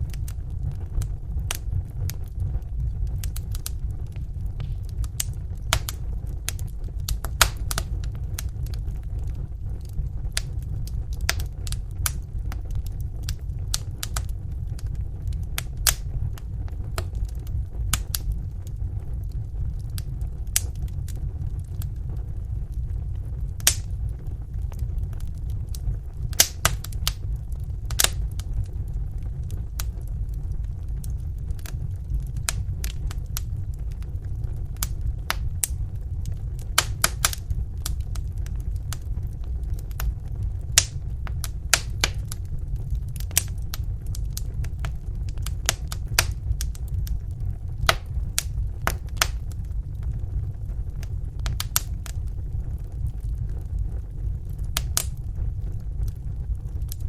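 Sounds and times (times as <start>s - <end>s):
fire crackling and popping: 0.0s - 57.0s
low rumble: 0.0s - 57.0s.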